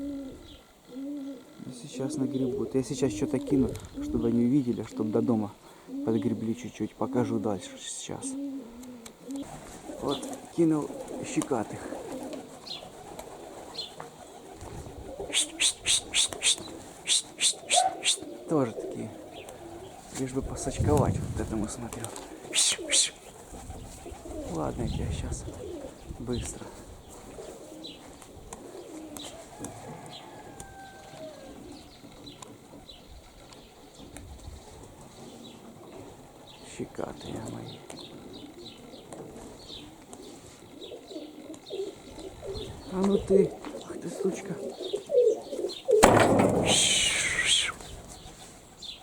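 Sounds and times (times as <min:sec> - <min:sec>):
pigeons cooing: 0:00.0 - 0:49.0
wind on microphone: 0:14.6 - 0:16.2, 0:20.4 - 0:21.7, 0:23.5 - 0:27.1, 0:42.3 - 0:43.4
sharp high-pitched chirps: 0:15.4 - 0:18.2.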